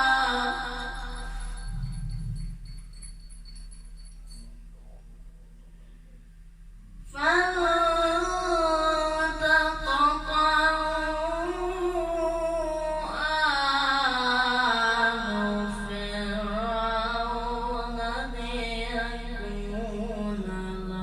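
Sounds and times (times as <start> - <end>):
man chanting melodically: 7.2 - 21.0.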